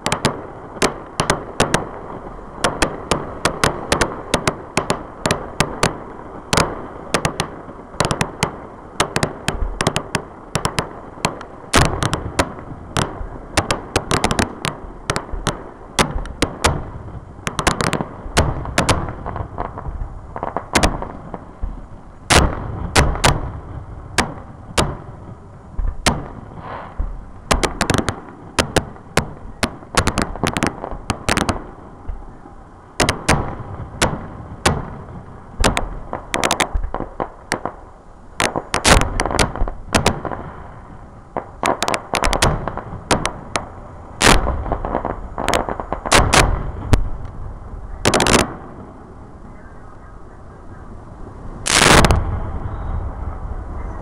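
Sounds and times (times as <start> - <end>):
sharp cracks and deep booms: 0.0 - 32.3, 33.0 - 49.4, 51.6 - 54.0
firework shells bursting: 2.6 - 32.2, 35.6 - 37.8, 38.4 - 47.4, 48.0 - 48.8, 51.6 - 53.1
low rumble: 46.3 - 54.0.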